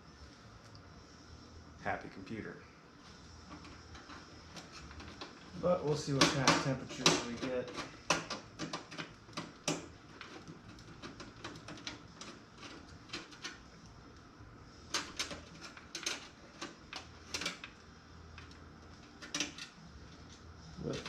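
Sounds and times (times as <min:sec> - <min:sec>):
computer parts clicking and tapping: 0:06.1 - 0:13.6.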